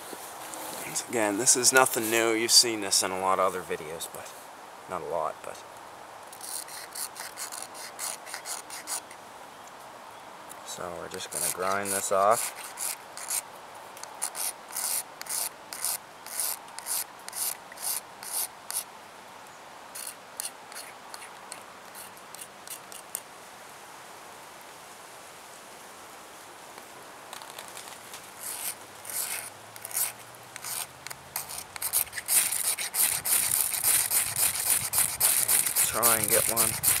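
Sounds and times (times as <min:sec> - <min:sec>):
knife blade scraping wood: 0:06.3 - 0:09.2, 0:11.1 - 0:13.4, 0:14.0 - 0:18.9, 0:20.0 - 0:23.2, 0:28.4 - 0:37.0.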